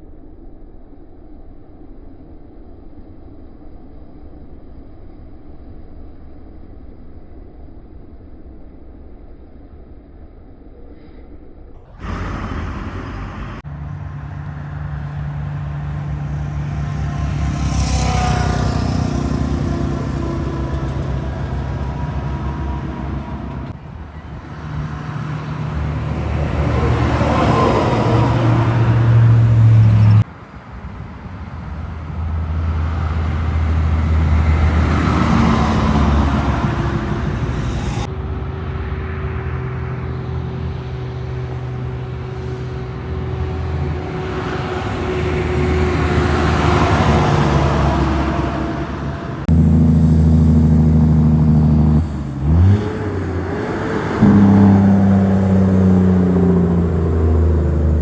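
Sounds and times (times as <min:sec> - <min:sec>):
heavy trucks driving past: 0:11.9 - 0:58.0.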